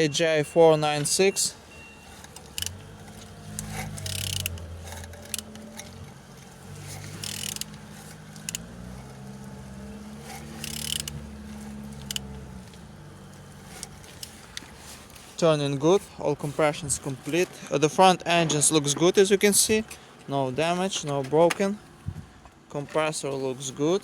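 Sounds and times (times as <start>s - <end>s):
metal-on-metal mechanical sounds: 2.1s - 8.7s, 10.3s - 11.3s
ratchet clicks: 2.2s - 8.7s, 10.4s - 11.2s, 12.0s - 12.3s.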